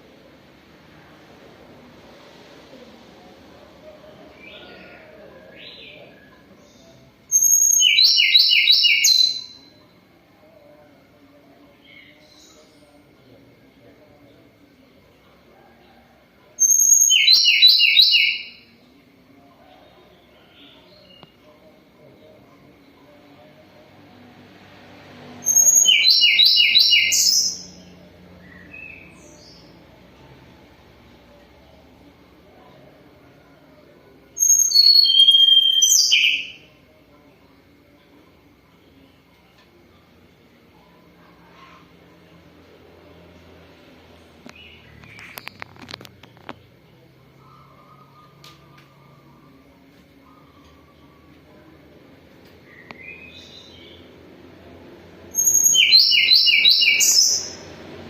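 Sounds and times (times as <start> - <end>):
bird singing whistle and notes: 7.3 - 9.7, 25.4 - 27.7, 34.4 - 36.6, 55.4 - 57.6.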